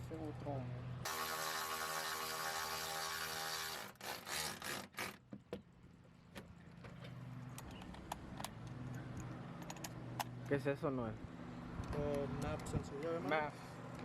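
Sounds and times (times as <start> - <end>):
small motor whining: 1.0 - 5.2.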